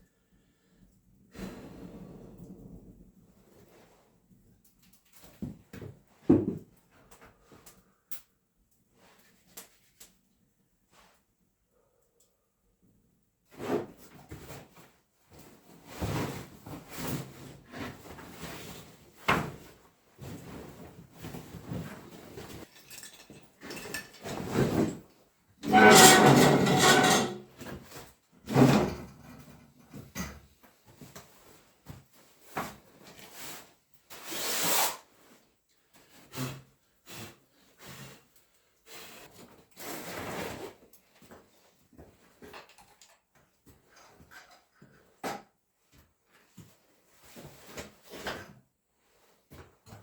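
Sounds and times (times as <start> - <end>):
wood scraping and knocking: 25.6 - 27.4.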